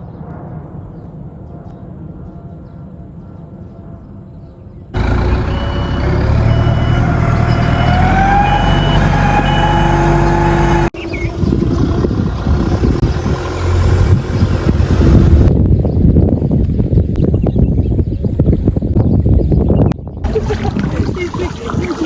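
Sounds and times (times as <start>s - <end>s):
vehicle engine revving: 5.0s - 15.6s
rough noisy rumble: 5.0s - 15.7s
high electronic beep: 5.4s - 10.9s.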